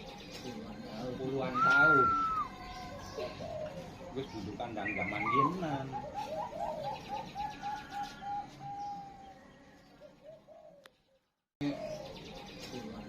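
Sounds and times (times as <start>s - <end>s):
dove cooing: 1.6s - 10.9s, 11.6s - 12.2s.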